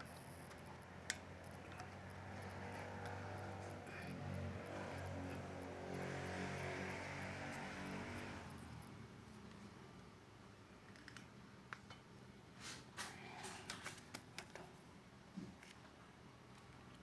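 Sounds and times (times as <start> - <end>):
small parts clicking: 0.0 - 6.4.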